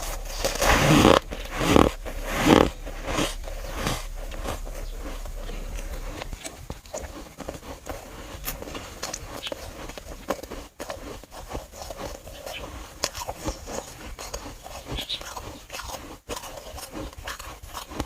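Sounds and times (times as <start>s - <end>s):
chewing with small crackles: 0.0s - 18.0s
crunching bites into frost: 0.0s - 18.0s.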